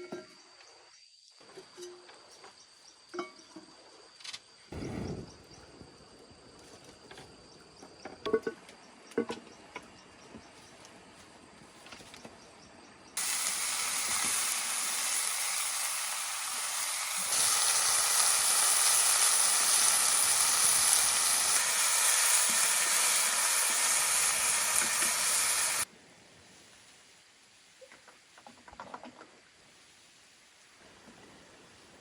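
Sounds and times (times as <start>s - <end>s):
loud steady hissing: 4.7s - 6.5s, 13.2s - 27.6s.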